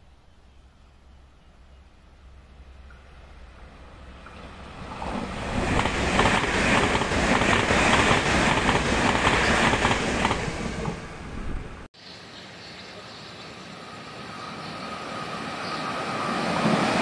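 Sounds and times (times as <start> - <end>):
train passing at high speed: 2.1 - 11.9, 13.4 - 17.0.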